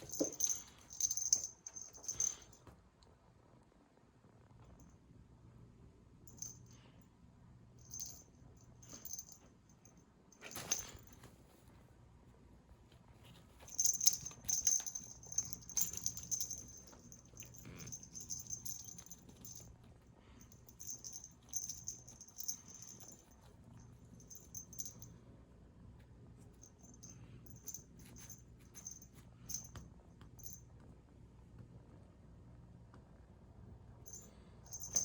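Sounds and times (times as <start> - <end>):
cat toy rattling: 0.0 - 2.5, 13.6 - 19.7, 20.4 - 23.4, 34.1 - 35.0.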